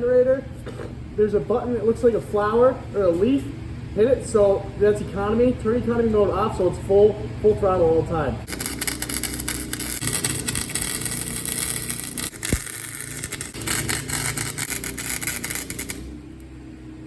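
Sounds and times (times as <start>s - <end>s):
generator engine running: 0.5s - 17.0s
welding arc crackling: 8.4s - 16.5s.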